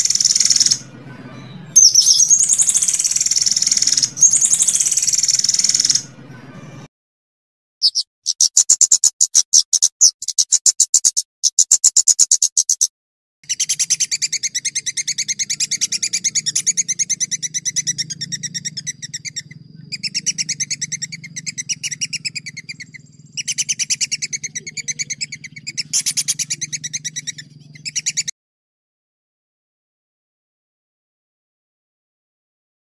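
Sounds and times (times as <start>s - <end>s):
songbird singing trills: 0.0s - 6.8s, 7.8s - 28.3s
steady low hum: 14.1s - 27.9s.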